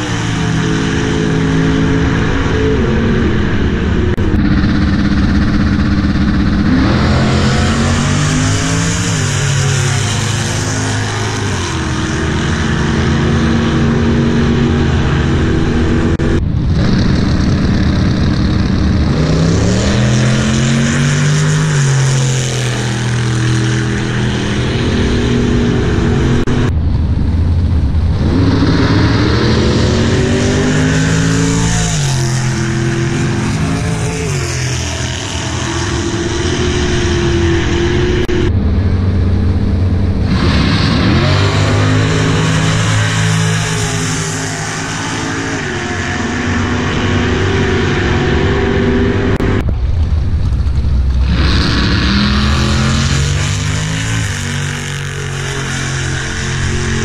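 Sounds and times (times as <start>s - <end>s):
race car engines revving: 0.0s - 57.0s.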